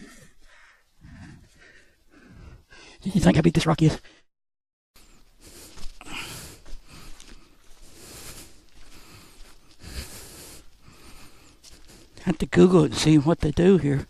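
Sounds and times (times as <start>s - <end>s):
person breathing heavily: 0.0s - 3.1s, 5.0s - 12.2s.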